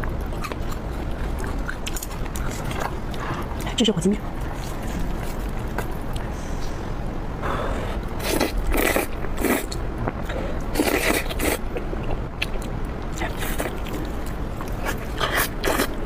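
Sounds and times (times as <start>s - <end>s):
mouth sounds of eating noodles: 7.8s - 12.6s.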